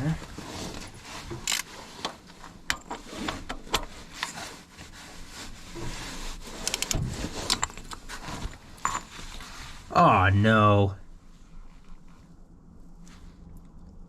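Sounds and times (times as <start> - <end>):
hand tools clicking and scraping: 0.7 - 4.5, 6.5 - 9.5.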